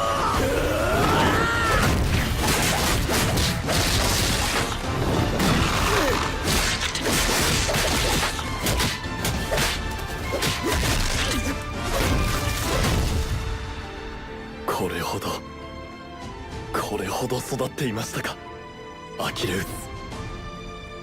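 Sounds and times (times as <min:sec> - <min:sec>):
person shouting: 0:00.0 - 0:01.8
soundtrack music: 0:00.0 - 0:21.0
punch and kick impacts: 0:01.8 - 0:13.4.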